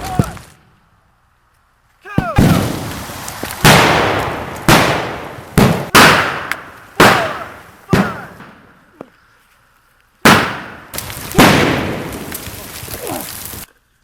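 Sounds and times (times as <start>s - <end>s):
loud sharp gunshots: 2.1s - 3.0s, 3.6s - 8.7s, 10.2s - 12.3s.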